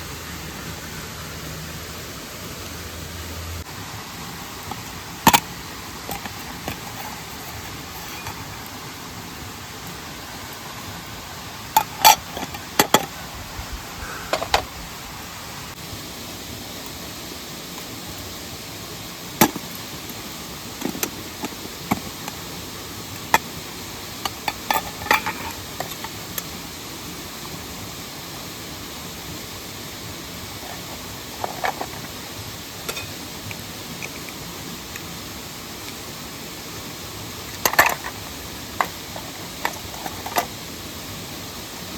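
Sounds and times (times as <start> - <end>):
steady rushing hiss: 0.0 - 41.9.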